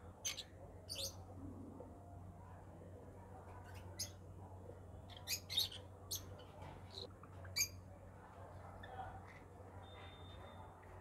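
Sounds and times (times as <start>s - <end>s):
caged birds chirping: 0.0s - 1.9s, 3.3s - 9.1s.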